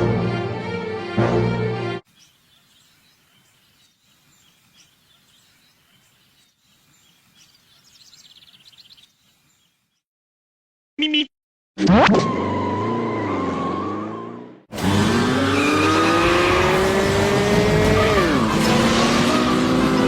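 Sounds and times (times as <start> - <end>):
theme music: 0.0 - 2.0, 12.7 - 20.0
faint outdoor ambience: 2.1 - 9.6
bird chirps: 2.1 - 10.0.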